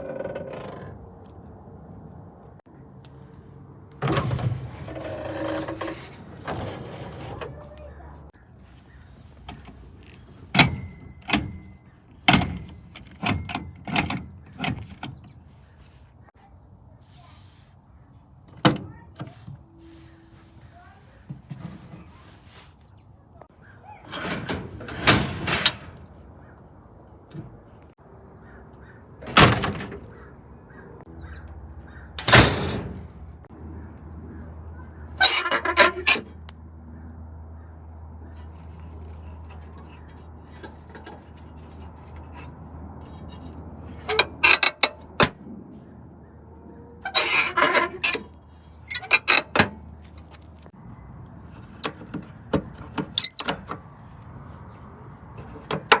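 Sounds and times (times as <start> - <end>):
metal car doors slamming: 29.2 - 30.2, 32.2 - 33.2.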